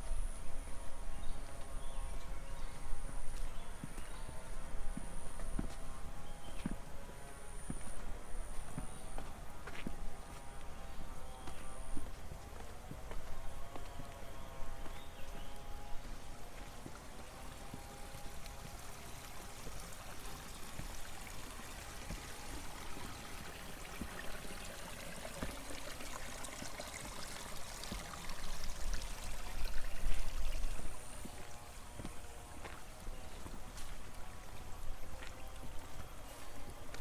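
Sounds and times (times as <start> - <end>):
water trickling in a channel: 14.1 - 37.0.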